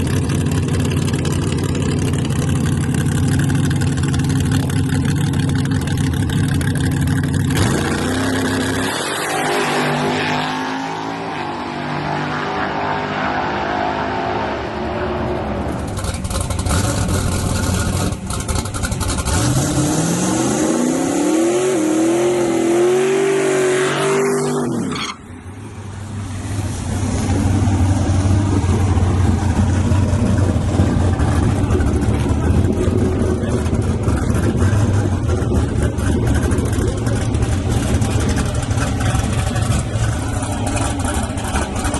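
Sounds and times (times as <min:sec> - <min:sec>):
engine running at low revs: 0:00.0 - 0:13.4, 0:25.4 - 0:41.9
truck engines at full throttle: 0:00.0 - 0:41.9.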